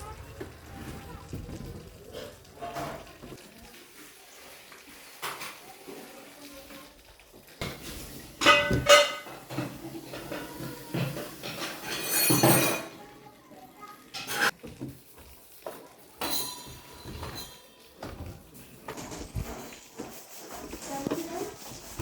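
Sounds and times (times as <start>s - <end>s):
metal tools clanking: 11.1s - 13.0s, 16.2s - 18.1s.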